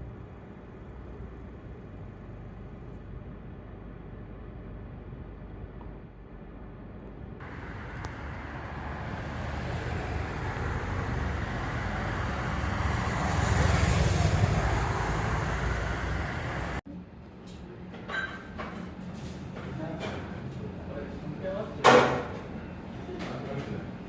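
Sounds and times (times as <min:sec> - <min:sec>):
road vehicle passing: 0:07.4 - 0:16.8.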